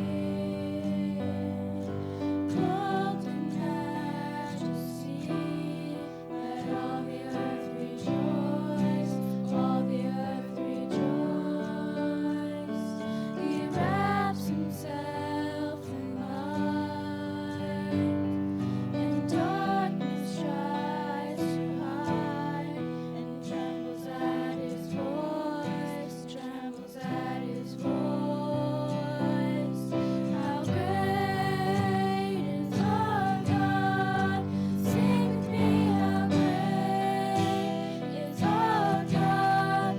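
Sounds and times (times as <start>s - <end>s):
girls singing a worship song: 0.0s - 39.9s.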